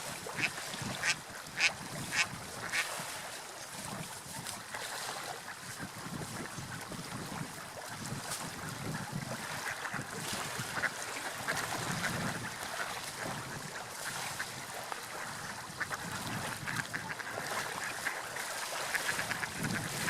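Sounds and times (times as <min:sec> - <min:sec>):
surf washing: 0:00.0 - 0:20.0
wind: 0:00.0 - 0:20.0.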